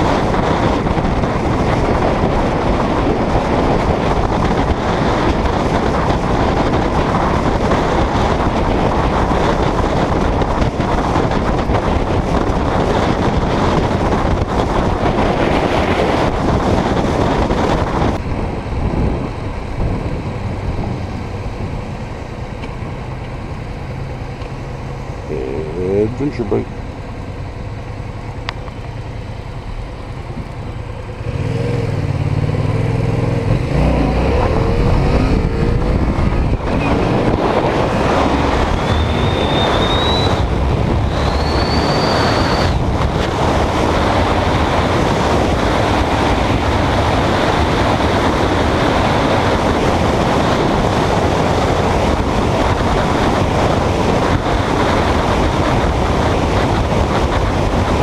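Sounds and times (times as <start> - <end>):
road and wind noise: 0.0 - 58.0
vehicle engine accelerating: 0.0 - 58.0
brief high whistles: 38.8 - 40.4, 41.1 - 42.8.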